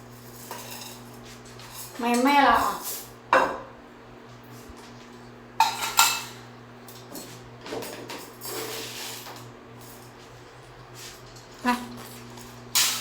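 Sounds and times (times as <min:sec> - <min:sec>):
feeding dish clinking: 0:05.6 - 0:06.4.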